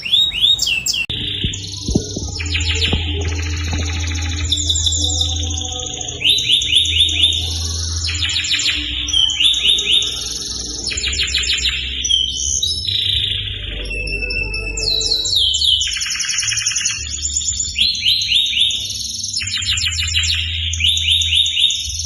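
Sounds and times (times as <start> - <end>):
canary singing trills: 0.0 - 22.0
steady low hum: 1.0 - 18.0.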